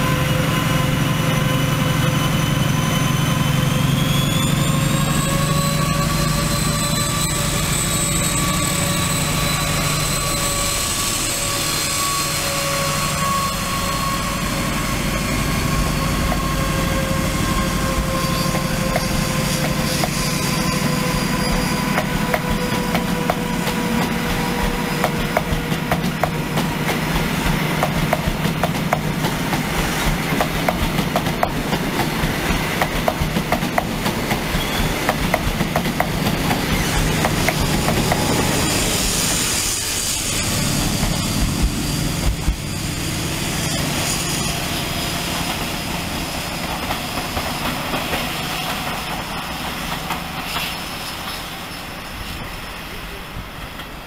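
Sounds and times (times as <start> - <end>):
train whine: 0.0 - 54.0.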